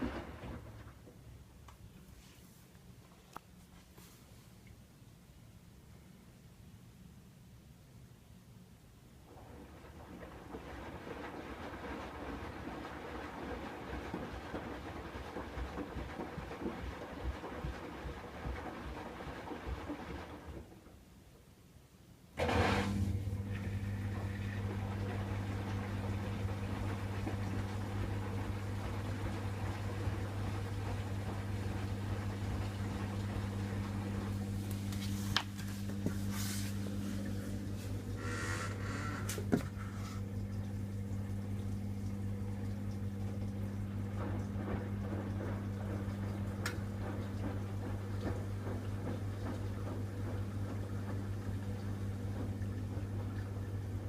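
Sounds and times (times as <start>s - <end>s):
drain pump humming: 9.3s - 20.9s, 22.4s - 54.0s
water gurgling: 37.0s - 54.0s.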